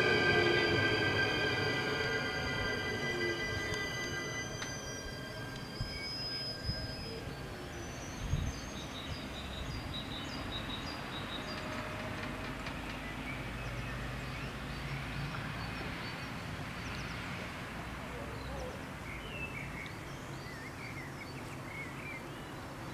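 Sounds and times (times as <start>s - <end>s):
low hum: 0.0s - 8.6s
electric train rumbling: 0.0s - 18.1s.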